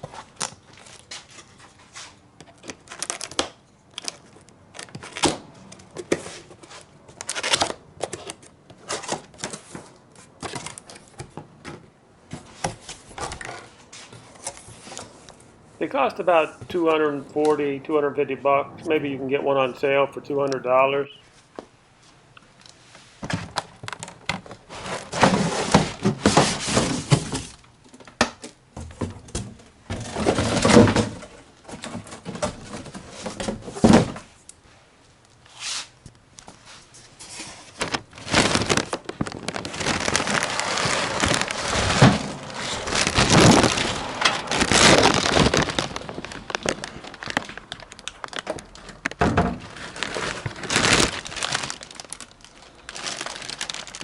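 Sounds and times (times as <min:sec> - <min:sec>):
cardboard and plastic rustling: 0:00.0 - 0:19.2, 0:22.9 - 0:34.3, 0:35.5 - 0:54.0
packaging thunks: 0:37.7 - 0:54.0.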